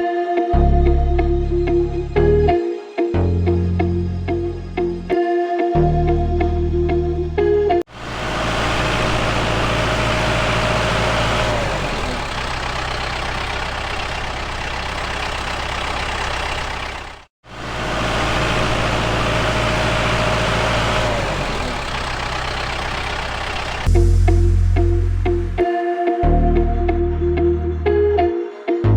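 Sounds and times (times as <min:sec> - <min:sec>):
tractor engine running: 0:07.9 - 0:24.2.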